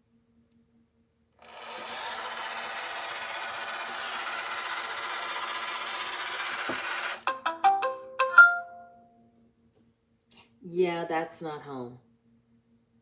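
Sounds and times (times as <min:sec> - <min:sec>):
robot vacuum whirring: 0:01.4 - 0:07.3.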